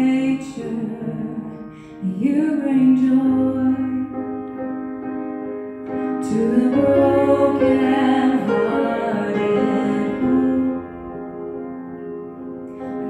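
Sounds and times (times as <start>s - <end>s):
woman singing: 0.0s - 4.2s, 6.1s - 11.2s, 12.8s - 13.0s
piano accompaniment: 0.0s - 13.0s.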